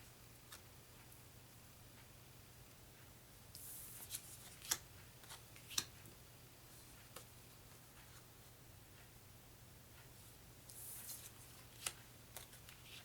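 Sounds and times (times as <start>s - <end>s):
low steady hum: 0.0s - 13.0s
cards rustling: 10.9s - 13.0s.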